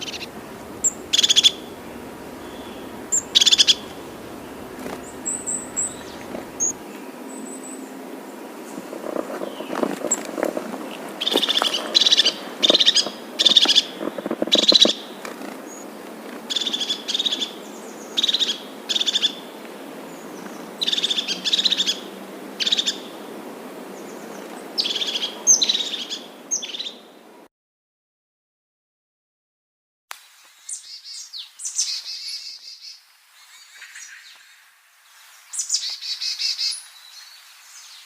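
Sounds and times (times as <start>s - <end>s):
bird calling: 0.0s - 6.8s
background hiss: 0.0s - 27.4s, 30.1s - 38.0s.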